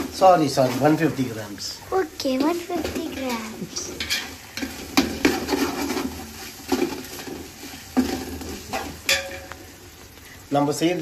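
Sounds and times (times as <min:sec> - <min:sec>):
onions sizzling in hot oil: 0:00.0 - 0:11.0
ladle scraping metal pot: 0:02.4 - 0:09.6.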